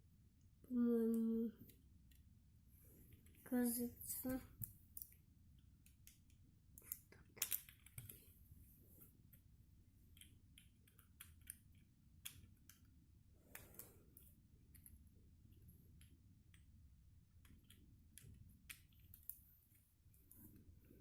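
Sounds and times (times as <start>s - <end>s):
plastic pieces clicking: 5.9s - 8.2s.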